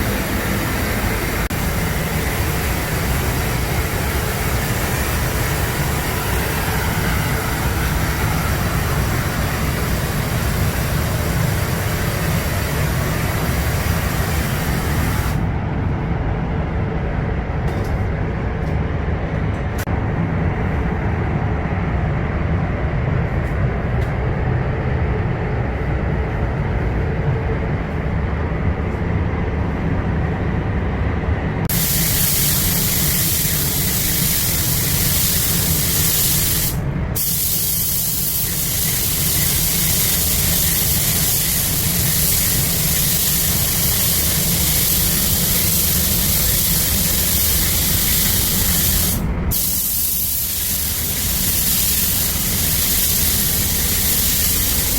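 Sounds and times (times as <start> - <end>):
low machine rumble: 0.0 - 37.6, 38.3 - 54.9
paint spray gun hissing: 1.5 - 15.4, 31.7 - 54.9.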